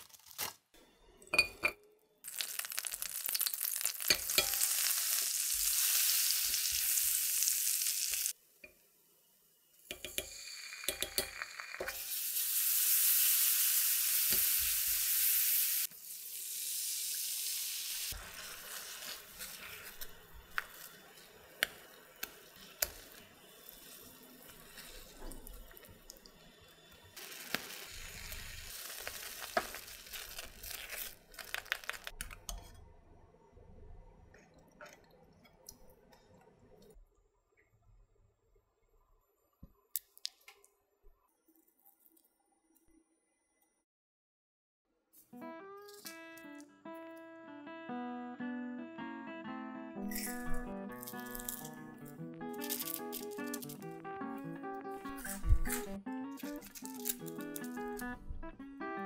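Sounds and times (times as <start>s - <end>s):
potatoes sizzling in hot oil: 2.2s - 8.4s, 9.8s - 32.2s, 56.5s - 58.0s.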